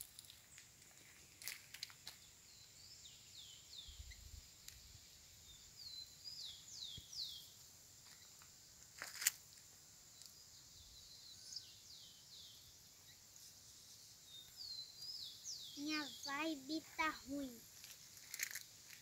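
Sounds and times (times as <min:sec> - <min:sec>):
faint high insect hiss: 0:00.0 - 0:19.0
bird singing whistled notes: 0:05.4 - 0:07.6, 0:10.6 - 0:13.2, 0:13.9 - 0:17.5.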